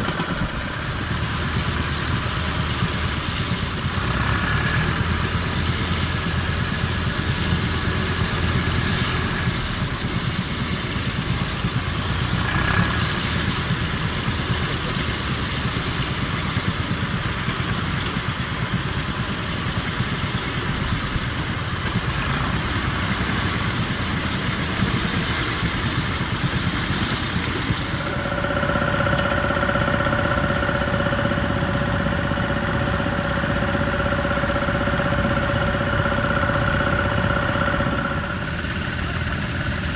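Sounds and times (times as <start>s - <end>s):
tractor engine running: 0.0s - 39.9s
high whine: 27.8s - 39.8s.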